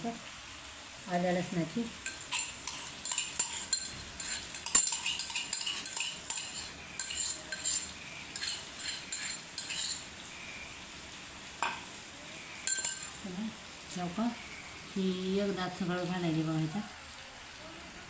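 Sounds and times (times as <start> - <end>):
spoon scraping against bowl: 2.0 - 10.1, 12.6 - 13.2.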